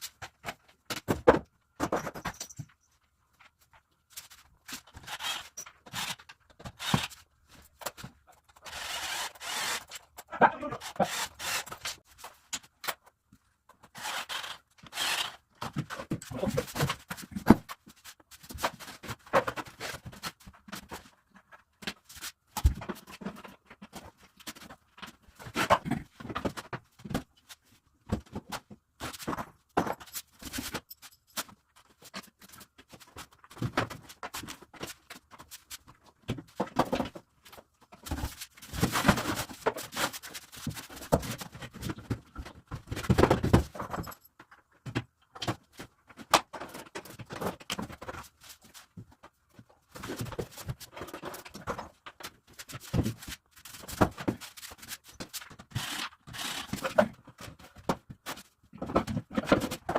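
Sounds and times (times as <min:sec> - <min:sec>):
knocks clicks and scrapes of assembly: 0:00.0 - 0:59.9.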